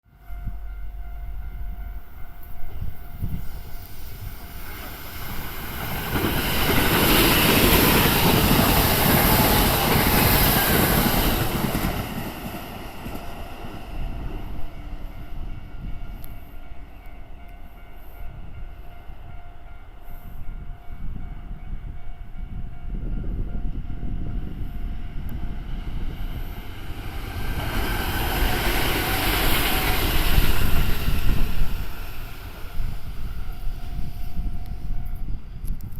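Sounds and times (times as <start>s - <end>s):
electric train on rails: 0.0s - 35.9s.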